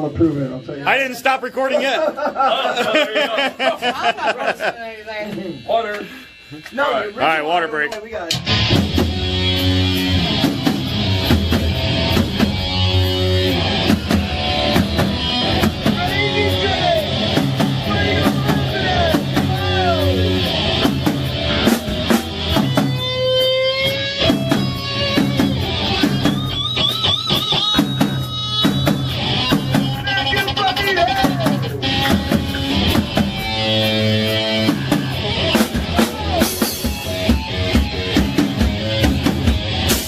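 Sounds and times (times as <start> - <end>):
rock band playing: 3.7 - 40.0
lead guitar bending notes: 8.3 - 40.0.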